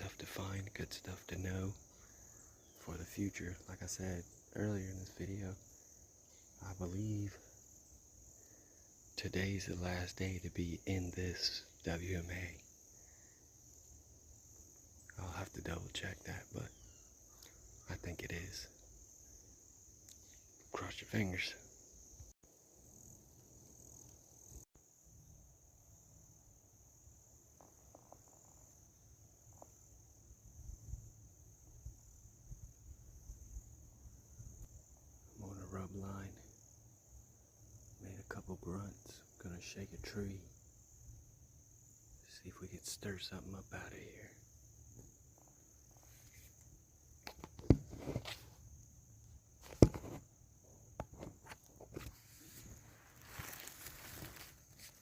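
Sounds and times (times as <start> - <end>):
insects chirring: 0.0 - 55.0
rustles and bumps: 47.2 - 48.7, 49.4 - 55.0.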